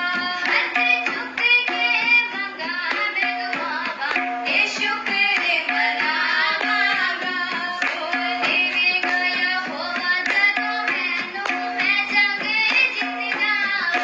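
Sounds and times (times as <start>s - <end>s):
tabla drumming: 0.0s - 14.0s.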